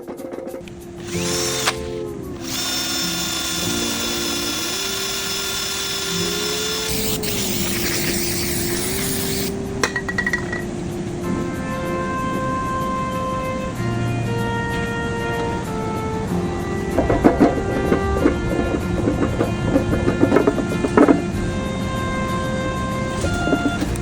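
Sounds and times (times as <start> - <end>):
background music: 0.0 - 24.0
power tool whining: 0.6 - 9.6.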